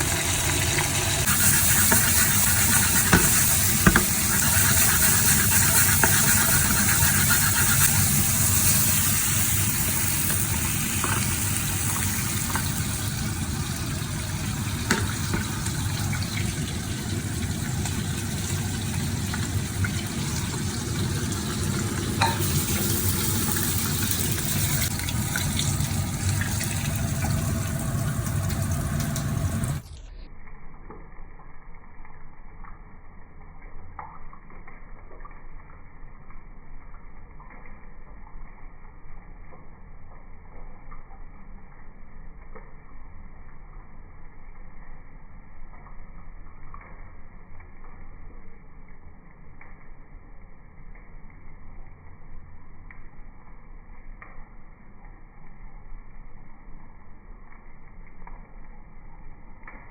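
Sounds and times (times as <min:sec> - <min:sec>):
oil sizzling in a frying pan: 0:00.0 - 0:29.9.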